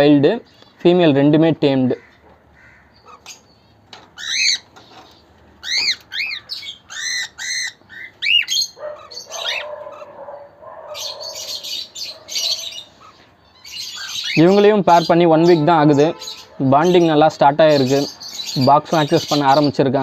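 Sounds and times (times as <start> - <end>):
cockatiel scratchy chatter: 4.2 - 14.5.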